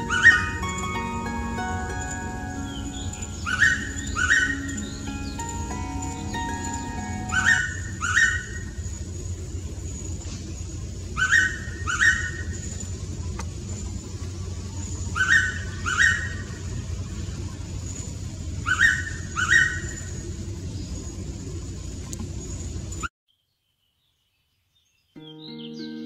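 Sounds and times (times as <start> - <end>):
thin high whine: 0.0 - 10.8
steady low rumble: 0.0 - 23.1.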